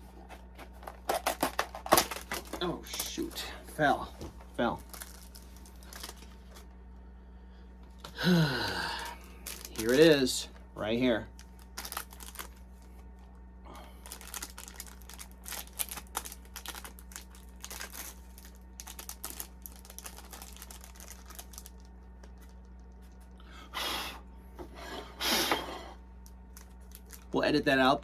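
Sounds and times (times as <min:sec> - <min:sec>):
packaging clicks and rustles: 0:00.2 - 0:04.0, 0:04.6 - 0:06.7, 0:09.2 - 0:10.2, 0:11.3 - 0:13.1, 0:14.0 - 0:23.4, 0:26.2 - 0:27.3.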